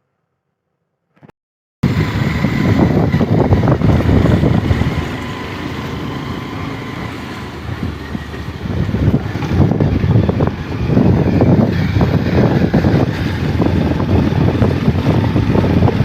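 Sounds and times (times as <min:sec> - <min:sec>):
moving vehicle running: 0:01.8 - 0:16.0
wind buffeting microphone: 0:01.8 - 0:16.0.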